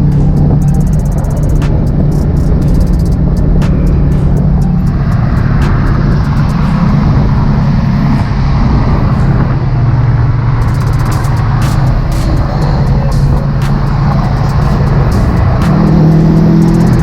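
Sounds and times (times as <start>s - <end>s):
car engine droning: 0.0s - 17.0s.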